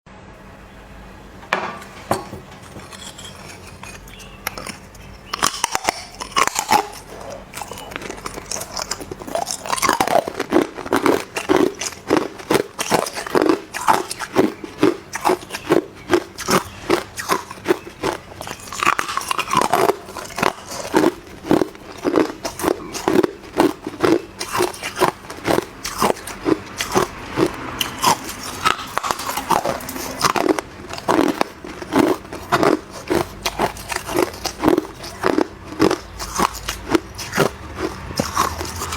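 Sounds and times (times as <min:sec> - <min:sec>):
ice crunching between teeth: 0:02.2 - 0:38.9.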